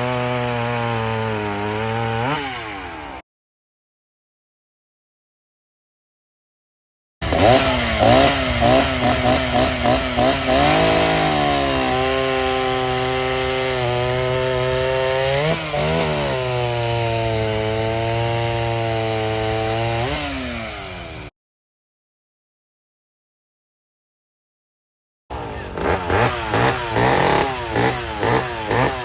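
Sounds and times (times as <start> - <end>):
two-stroke chainsaw running: 0.0 - 3.2, 7.2 - 21.3, 25.3 - 29.0.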